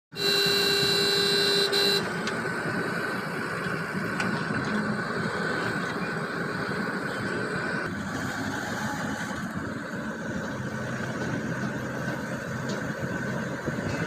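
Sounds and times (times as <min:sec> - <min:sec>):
vehicle horn: 0:00.1 - 0:02.2
steady engine hum: 0:00.1 - 0:14.0.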